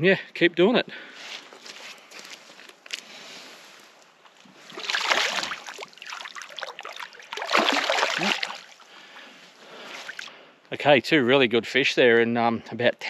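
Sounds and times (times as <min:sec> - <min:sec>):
water splashing: 0:04.5 - 0:08.9.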